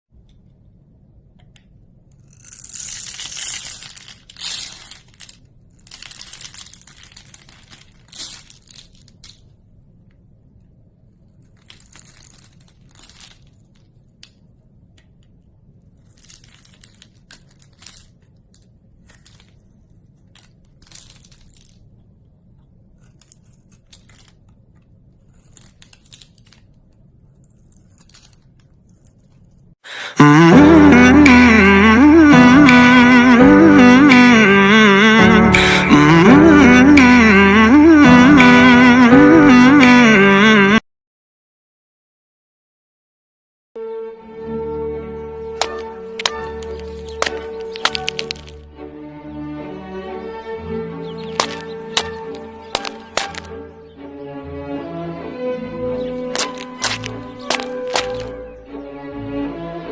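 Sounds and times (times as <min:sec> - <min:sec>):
packaging crinkling and tearing: 0:02.1 - 0:09.6, 0:11.1 - 0:15.2, 0:15.8 - 0:29.8, 0:45.5 - 0:48.6, 0:51.1 - 0:53.5, 0:56.0 - 0:58.3.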